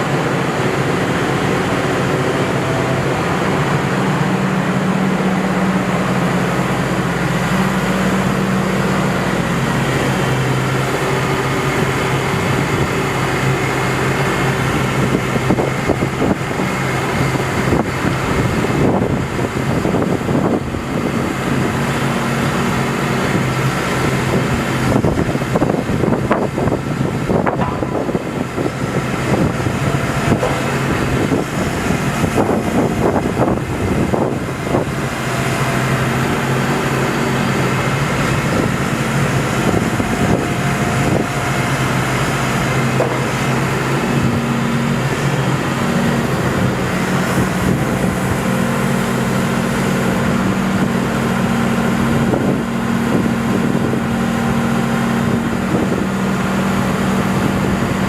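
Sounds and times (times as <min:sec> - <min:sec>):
excavator diesel engine running: 0:00.0 - 0:58.0
sharp knocks and clanks: 0:27.4 - 0:31.8, 0:42.8 - 0:43.8.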